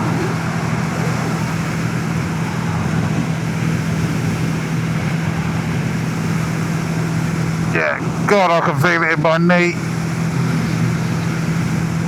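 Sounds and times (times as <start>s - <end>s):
constant hiss: 3.6s - 12.0s
motorcycle engine running: 9.8s - 12.0s.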